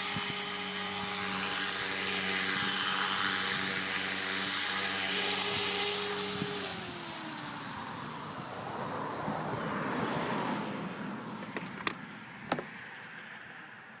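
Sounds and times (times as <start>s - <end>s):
motor whining: 0.0s - 9.2s.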